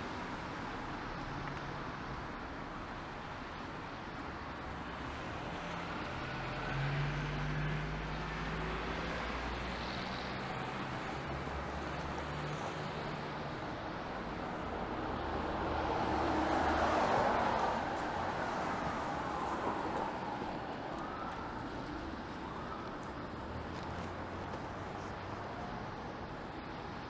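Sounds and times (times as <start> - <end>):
vehicle passing with tyre hiss: 4.8 - 22.7.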